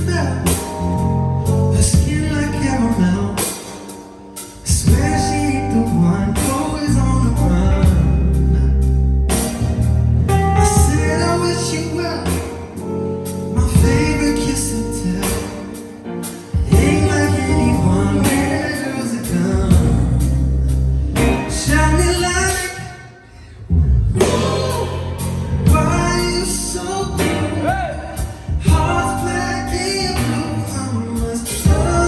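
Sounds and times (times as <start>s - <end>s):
person singing lead vocal: 0.0s - 9.2s, 10.4s - 32.0s
bass line: 0.0s - 22.9s, 23.5s - 32.0s
steady drum beat: 1.9s - 2.5s, 4.7s - 5.5s, 10.6s - 11.2s, 13.6s - 14.3s, 15.2s - 20.4s, 24.2s - 29.4s, 31.2s - 32.0s.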